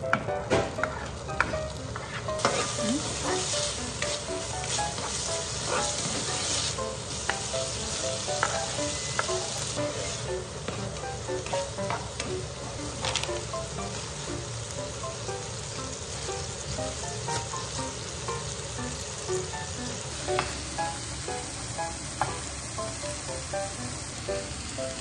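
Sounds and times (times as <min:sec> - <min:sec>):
bacon sizzling in a frying pan: 0:00.0 - 0:25.0
spatula scraping a pan: 0:00.7 - 0:03.5, 0:04.1 - 0:06.8.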